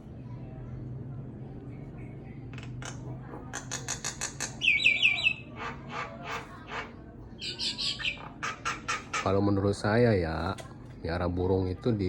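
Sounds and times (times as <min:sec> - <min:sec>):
pet bird chirping: 0:03.6 - 0:09.4.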